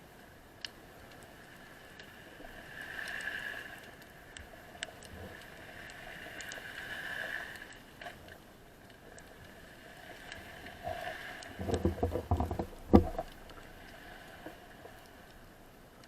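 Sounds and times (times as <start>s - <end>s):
underwater hiss: 5.2s - 7.7s.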